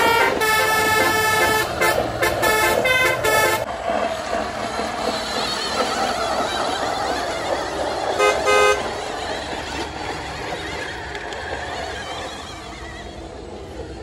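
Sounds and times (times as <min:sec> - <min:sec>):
vehicle horn toots: 0:00.0 - 0:03.7, 0:08.2 - 0:08.8
road vehicle noise: 0:00.0 - 0:14.0.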